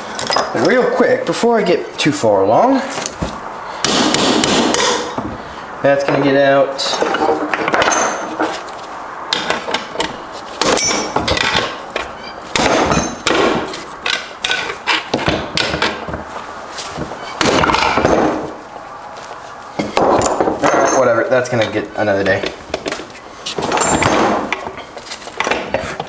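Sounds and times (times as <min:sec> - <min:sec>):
steel parts clanking: 0:00.0 - 0:01.9, 0:06.0 - 0:08.7, 0:09.3 - 0:16.1, 0:19.8 - 0:22.6, 0:23.5 - 0:26.0
metal rattling and scraping: 0:02.8 - 0:26.0
hammer strikes on steel: 0:03.8 - 0:05.2.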